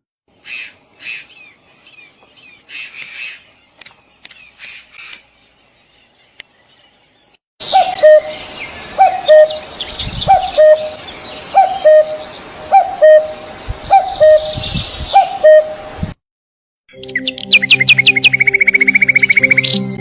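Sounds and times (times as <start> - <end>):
high bird chirping: 0.4 - 15.8, 16.9 - 20.0
two-note bird call: 10.3 - 11.0, 11.6 - 14.6, 15.2 - 15.8.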